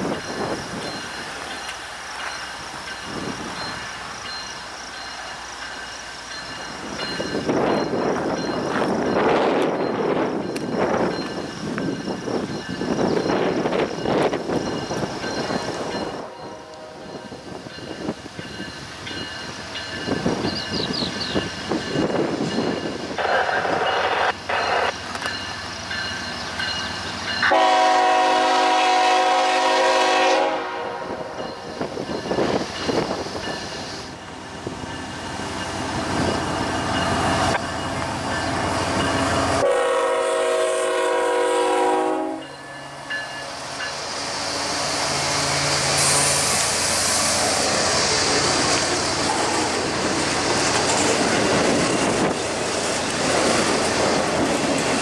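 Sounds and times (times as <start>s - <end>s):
train wheels rumbling on rail: 0.0s - 55.0s
train air horn blasts: 16.2s - 17.1s, 27.4s - 31.3s, 39.6s - 42.5s
rushing hiss: 42.8s - 55.0s.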